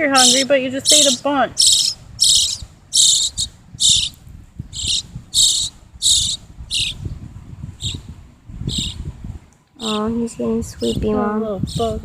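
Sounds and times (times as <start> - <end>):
fledgling bird begging chirps: 0.0 - 7.1, 7.8 - 8.1, 8.7 - 9.0.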